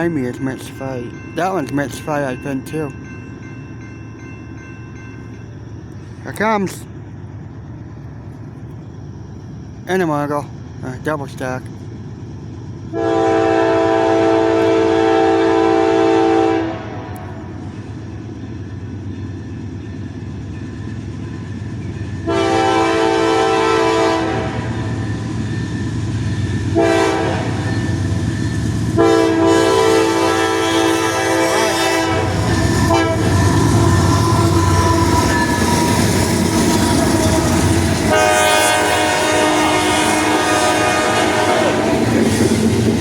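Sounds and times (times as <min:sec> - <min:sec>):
freight train rumbling past: 0:00.0 - 0:43.0
diesel locomotive horn: 0:12.9 - 0:17.6, 0:22.2 - 0:25.0, 0:26.7 - 0:28.0, 0:28.9 - 0:42.2.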